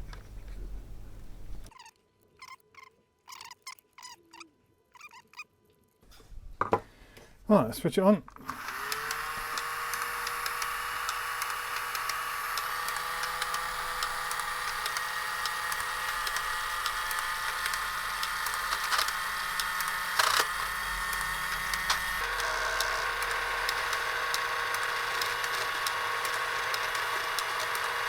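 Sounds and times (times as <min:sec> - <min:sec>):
plastic gears clicking: 0:08.3 - 0:28.0
small electric motor whining: 0:08.4 - 0:28.0.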